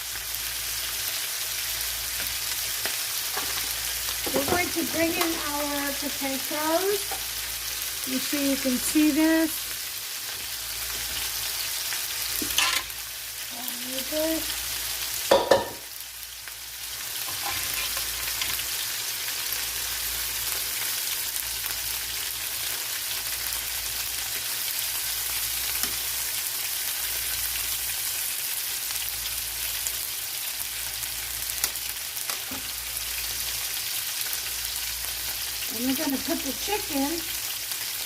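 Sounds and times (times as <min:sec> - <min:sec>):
food sizzling in a frying pan: 0:00.0 - 0:38.0
cookware clattering: 0:15.3 - 0:15.8.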